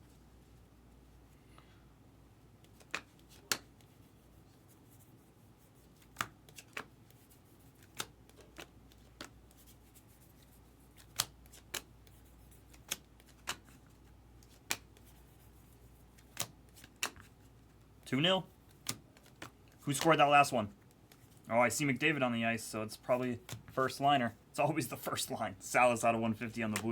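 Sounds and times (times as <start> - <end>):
cards snapping clicks: 2.6 - 3.7, 11.0 - 11.9, 12.7 - 13.8, 14.4 - 14.9, 16.2 - 17.3.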